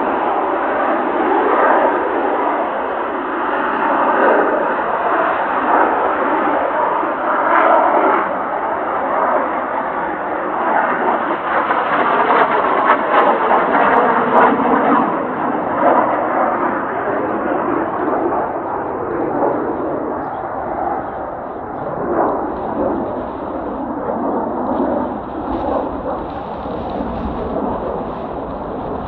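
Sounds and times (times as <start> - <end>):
jet aircraft flying over: 0.0 - 29.0
short crackles: 20.4 - 29.0.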